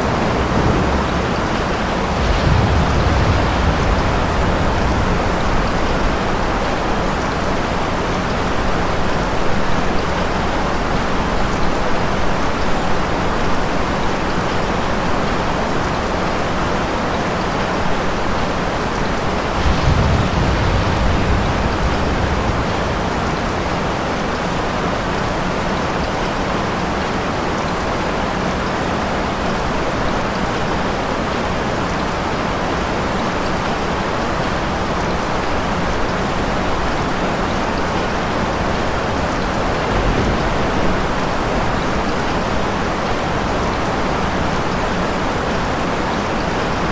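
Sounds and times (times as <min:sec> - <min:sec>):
low thunder rumbling: 0:00.0 - 0:12.3, 0:18.8 - 0:25.8, 0:34.6 - 0:45.4
heavy rain falling: 0:00.0 - 0:46.9.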